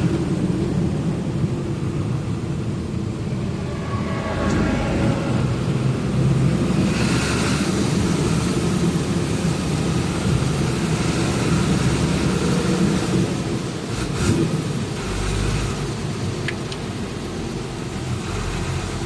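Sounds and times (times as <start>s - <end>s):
road noise: 0.0s - 19.0s
truck engine rumble: 0.0s - 19.0s.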